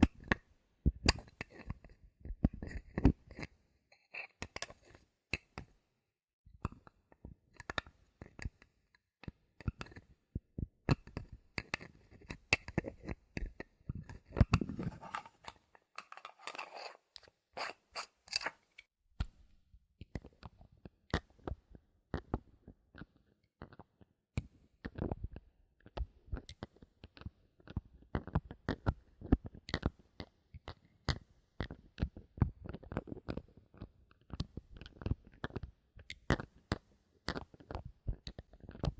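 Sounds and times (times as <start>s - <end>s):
bottle caps clicking and tapping: 10.9s - 17.0s, 17.6s - 19.4s
rustling scrapes: 14.6s - 18.9s.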